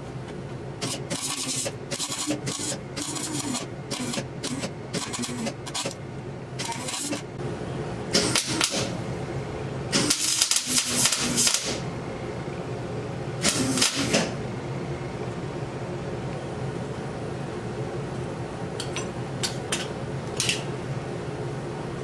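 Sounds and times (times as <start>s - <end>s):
steady hum: 0.0s - 22.0s
arc welding crackling: 10.0s - 11.8s.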